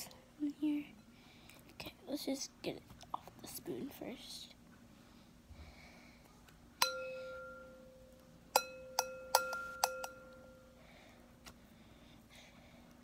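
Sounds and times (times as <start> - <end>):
spoon striking ringing bowl: 6.8 - 10.7.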